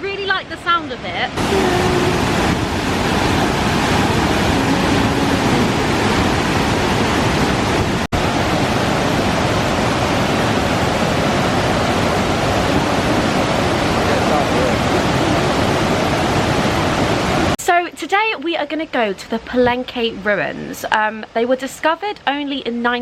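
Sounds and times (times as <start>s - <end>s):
waterfall roaring: 0.6s - 17.6s.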